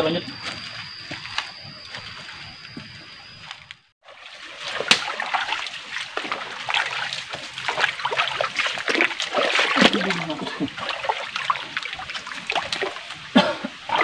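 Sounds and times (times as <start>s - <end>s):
footsteps splashing in stream: 4.0s - 13.2s.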